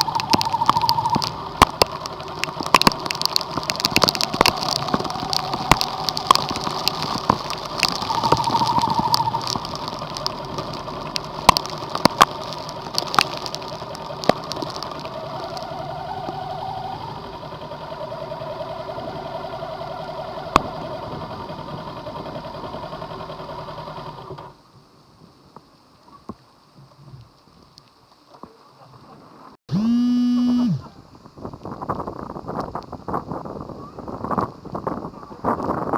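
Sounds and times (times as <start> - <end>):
rain tapping on vehicle: 0.0 - 16.4
vehicle running: 0.0 - 24.6.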